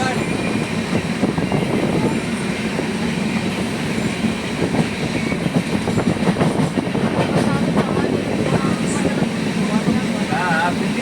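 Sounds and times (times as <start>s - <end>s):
train rumbling along track: 0.0s - 11.0s
wheels clattering on rails: 3.4s - 11.0s.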